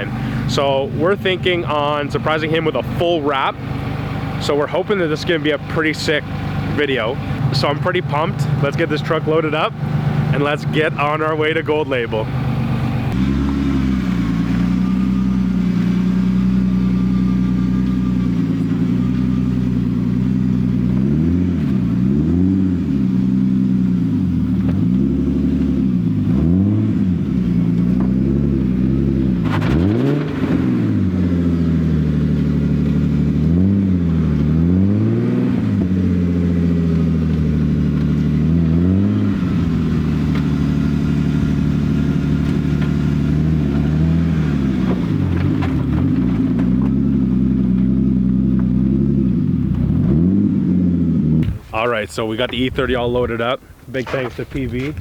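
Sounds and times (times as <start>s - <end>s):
vehicle engine revving: 0.0s - 55.0s.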